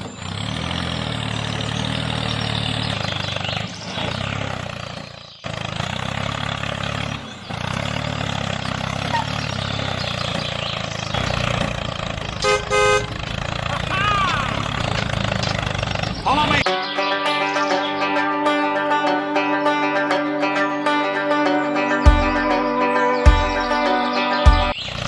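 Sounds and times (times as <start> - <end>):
engine humming: 0.0 - 25.0
short horn toot: 12.4 - 13.2.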